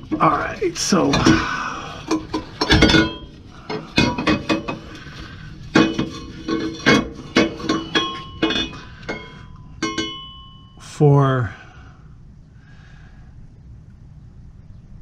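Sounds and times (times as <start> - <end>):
metal pipes clinking and knocking: 0.0 - 10.8.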